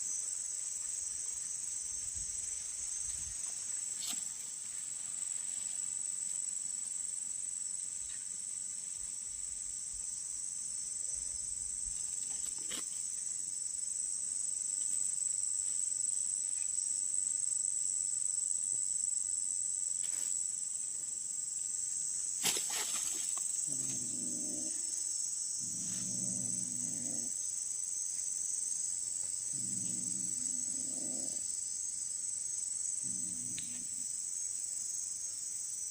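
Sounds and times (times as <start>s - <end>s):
crickets chirring: 0.0s - 35.9s
animal giving low calls: 23.6s - 25.0s, 29.5s - 31.4s.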